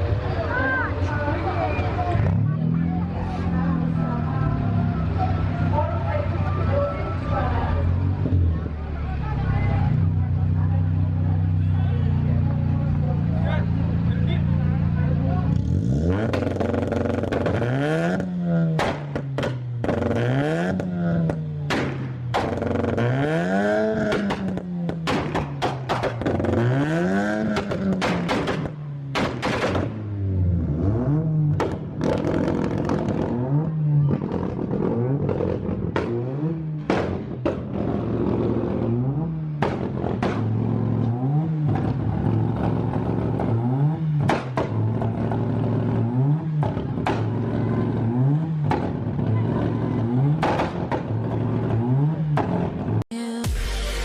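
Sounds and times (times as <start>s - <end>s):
car engine revving: 0.0s - 54.0s
exhaust cracks: 15.5s - 53.0s.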